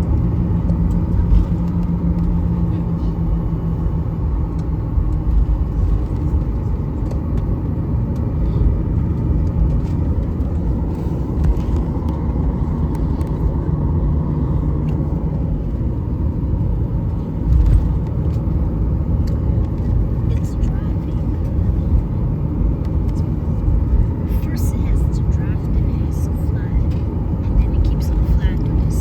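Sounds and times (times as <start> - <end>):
airliner cabin rumble: 0.0 - 29.0
jet engines humming: 0.0 - 29.0.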